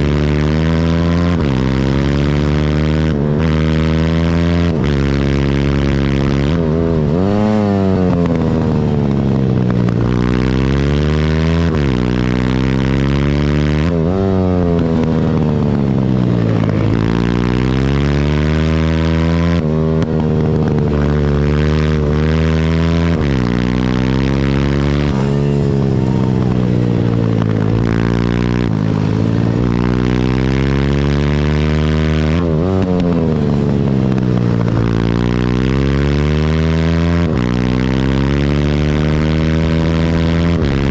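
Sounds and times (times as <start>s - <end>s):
motorbike engine revving: 0.0s - 40.9s.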